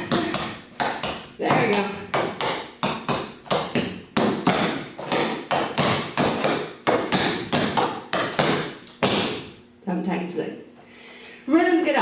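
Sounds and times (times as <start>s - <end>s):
tap shoes clacking on hard floor: 0.0s - 9.4s.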